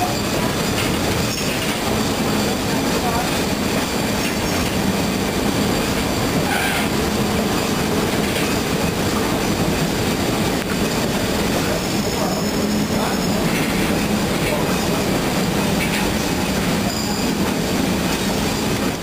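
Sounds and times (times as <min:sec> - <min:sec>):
train wheels rumbling on rails: 0:00.0 - 0:19.0
faint high wheel squeal: 0:06.1 - 0:07.0, 0:11.7 - 0:14.0, 0:15.9 - 0:17.7, 0:18.4 - 0:18.8.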